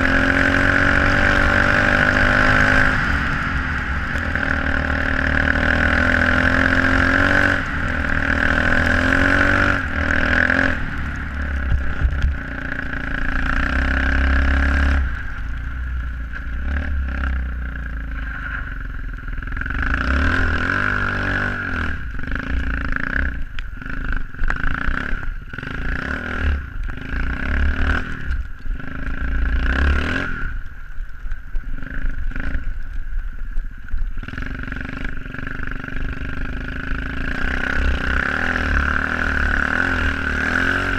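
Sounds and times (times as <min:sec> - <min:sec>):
motorbike engine revving: 0:00.0 - 0:30.7, 0:34.2 - 0:40.9
knocks and clatter from bike: 0:10.6 - 0:12.6.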